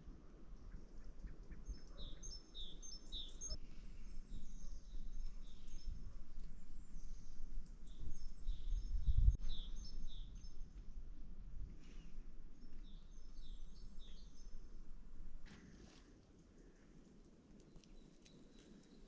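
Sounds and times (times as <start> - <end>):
short rustle: 15.4 - 16.2.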